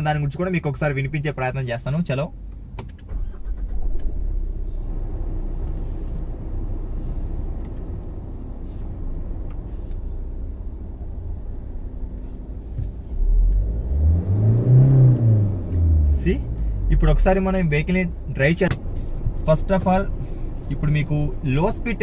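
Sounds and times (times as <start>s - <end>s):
diesel engine idling and revving: 0.0s - 22.0s.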